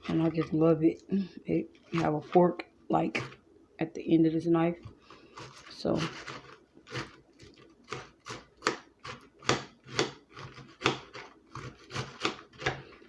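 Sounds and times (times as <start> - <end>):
knife chopping lettuce on board: 5.4 - 7.2, 7.8 - 12.9.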